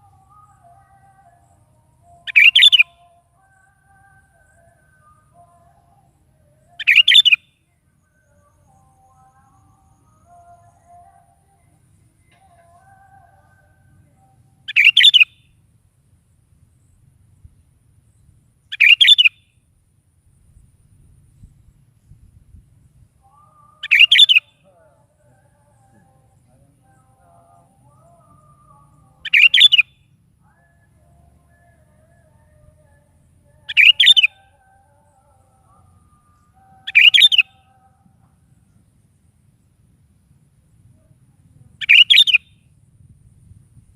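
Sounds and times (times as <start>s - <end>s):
bird calling: 0.0s - 7.4s, 12.3s - 15.4s, 18.7s - 19.4s, 23.2s - 32.9s, 33.6s - 38.1s, 41.8s - 42.6s
bulbul singing bubbly phrases: 0.0s - 15.4s, 18.7s - 19.3s, 23.2s - 38.1s, 41.8s - 42.6s.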